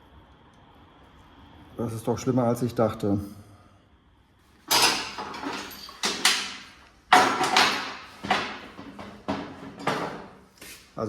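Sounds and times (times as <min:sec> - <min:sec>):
hard parts clattering and scraping: 0:04.6 - 0:10.5.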